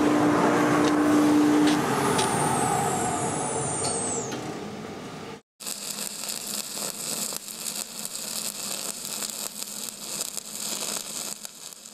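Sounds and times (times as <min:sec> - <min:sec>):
welding arc crackling and hissing: 0:05.6 - 0:11.9.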